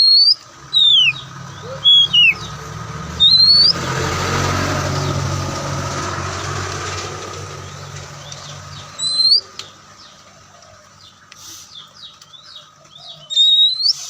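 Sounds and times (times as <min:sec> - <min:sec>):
magpie-robin singing: 0:00.0 - 0:04.0, 0:07.6 - 0:14.0.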